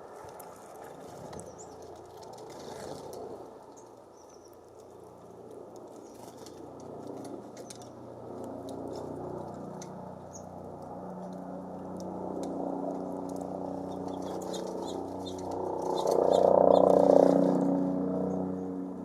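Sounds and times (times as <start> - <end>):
songbirds chirping: 3.6 - 5.2, 13.8 - 17.1.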